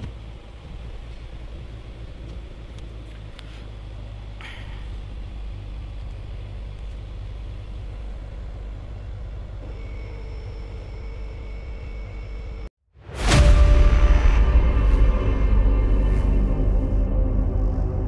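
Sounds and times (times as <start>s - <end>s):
car engine idling: 0.0s - 12.7s
faint high whine: 0.0s - 12.7s.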